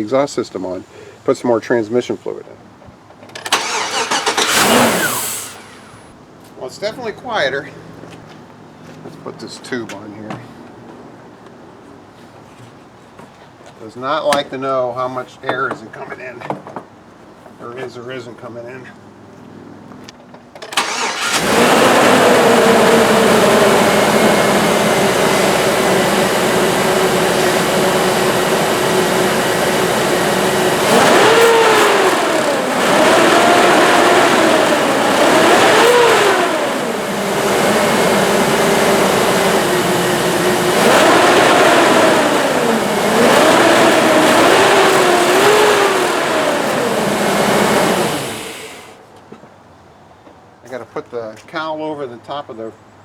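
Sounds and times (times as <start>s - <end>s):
car engine starting and revving: 3.4s - 6.2s, 20.7s - 49.0s.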